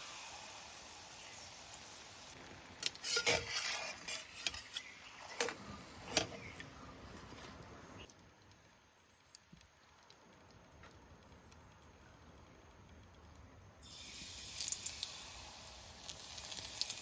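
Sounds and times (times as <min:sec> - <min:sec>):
kitchen utensils clattering: 0:03.0 - 0:06.4.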